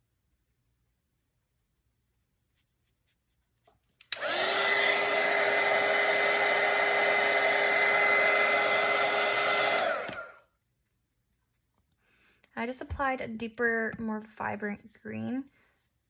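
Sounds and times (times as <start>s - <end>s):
hair dryer switch click: 4.1s - 5.5s, 9.4s - 10.3s
hair dryer whine: 4.1s - 10.4s.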